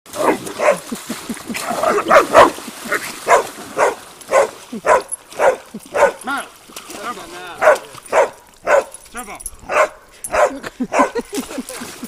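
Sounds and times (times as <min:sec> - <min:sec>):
dog barking: 0:00.2 - 0:00.8, 0:01.8 - 0:02.6, 0:03.2 - 0:06.2, 0:07.6 - 0:09.0, 0:09.7 - 0:11.2.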